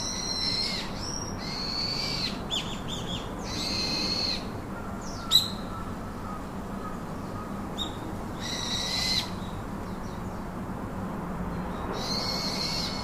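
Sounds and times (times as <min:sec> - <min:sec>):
bird calling: 0:00.0 - 0:09.5
constant background hum: 0:00.0 - 0:13.0.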